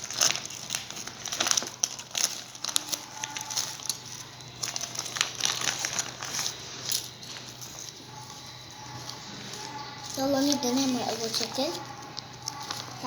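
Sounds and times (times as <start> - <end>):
toy blocks clicking and rustling: 0.0 - 8.0.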